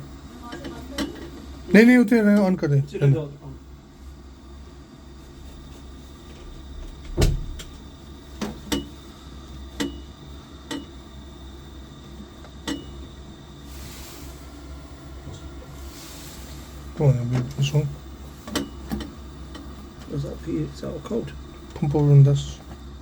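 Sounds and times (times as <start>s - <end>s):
steady low hum: 0.0s - 23.0s
short hisses: 13.6s - 17.0s.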